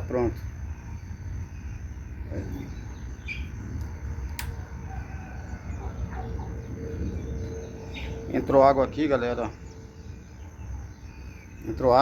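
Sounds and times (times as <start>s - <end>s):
steady low rumble: 0.0s - 11.8s
faint bird chirps: 0.9s - 3.9s
sharp click: 3.8s - 4.6s.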